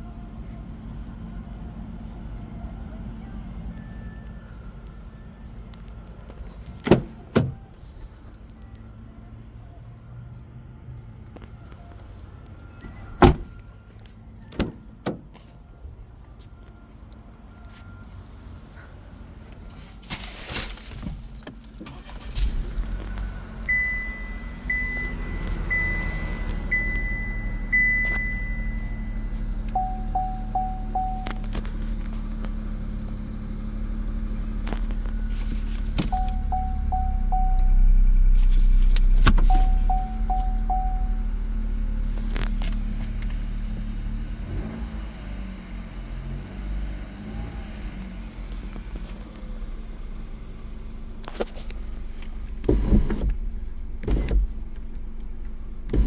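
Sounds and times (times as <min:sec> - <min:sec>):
car engine starting and idling: 0:00.8 - 0:09.7, 0:10.9 - 0:56.0
short rustle: 0:19.7 - 0:23.2, 0:34.8 - 0:36.4, 0:38.3 - 0:39.9
high warning chimes: 0:23.7 - 0:31.5, 0:36.1 - 0:37.9, 0:39.4 - 0:41.4.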